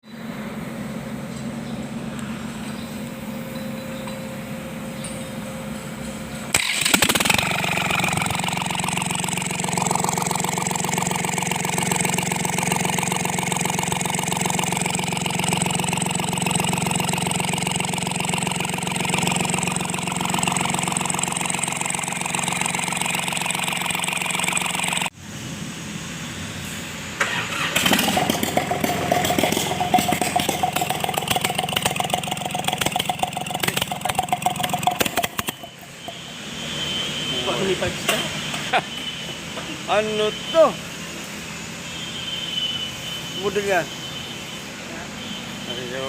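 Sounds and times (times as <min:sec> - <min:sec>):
tractor engine idling: 0:00.0 - 0:25.2, 0:27.2 - 0:40.6
tractor engine starting: 0:06.2 - 0:25.2, 0:27.1 - 0:36.4.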